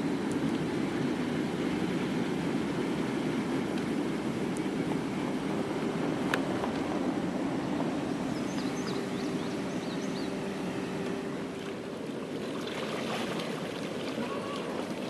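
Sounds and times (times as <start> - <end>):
steady hum: 0.0 - 15.0
freight train cars rumbling: 0.7 - 12.0.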